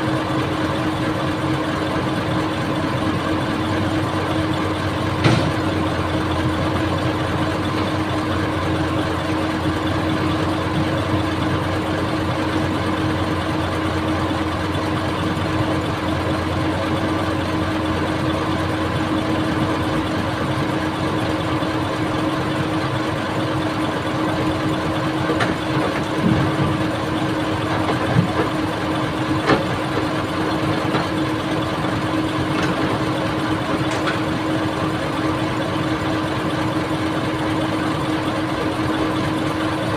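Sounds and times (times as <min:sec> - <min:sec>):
diesel engine running: 0:00.0 - 0:39.9
sharp knocks: 0:05.2 - 0:05.7.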